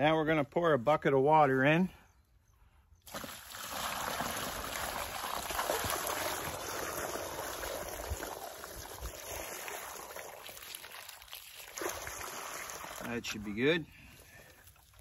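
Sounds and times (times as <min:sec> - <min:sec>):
water pouring into hole: 0:03.0 - 0:15.0.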